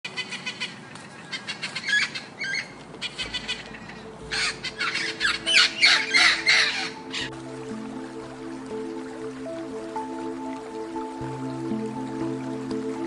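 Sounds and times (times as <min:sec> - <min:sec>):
birds squawking: 0:00.0 - 0:07.4.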